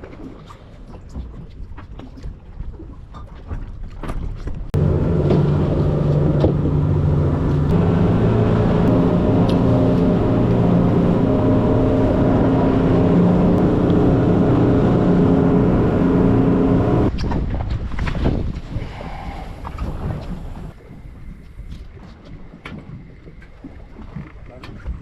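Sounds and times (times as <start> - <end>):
engine humming: 4.8 - 17.1.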